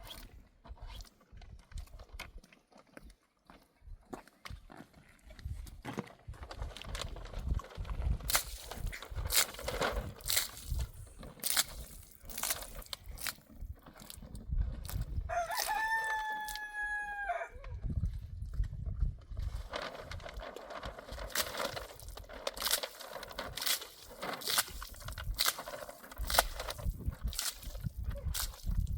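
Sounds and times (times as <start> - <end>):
rooster crowing: 15.3 - 17.6.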